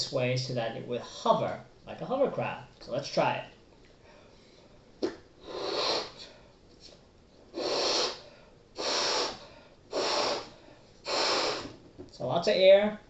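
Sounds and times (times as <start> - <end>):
quiet breaths: 3.8 - 11.8
person blowing up a balloon: 5.4 - 6.3, 7.5 - 11.8.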